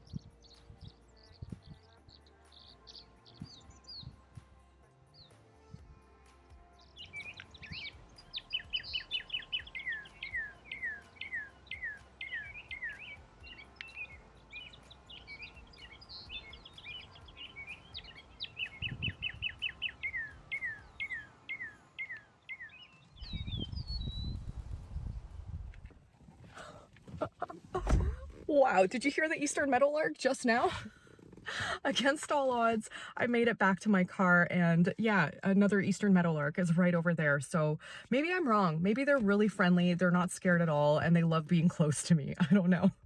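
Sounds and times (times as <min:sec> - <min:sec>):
songbirds singing: 0:00.0 - 0:04.4, 0:05.2 - 0:05.4, 0:06.5 - 0:43.0
low handling noise rumble: 0:23.4 - 0:29.6.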